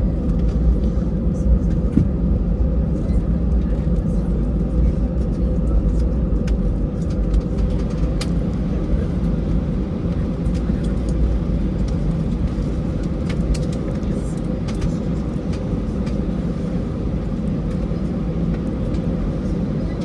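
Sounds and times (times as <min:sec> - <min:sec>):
airliner cabin engine rumble: 0:00.0 - 0:20.0
faint cabin clicks and rattles: 0:04.8 - 0:09.4, 0:10.1 - 0:20.0.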